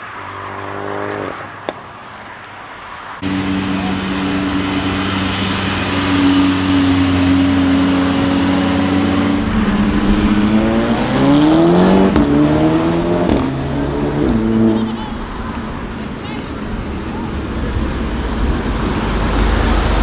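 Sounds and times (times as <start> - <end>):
car engine accelerating: 3.2 - 15.5.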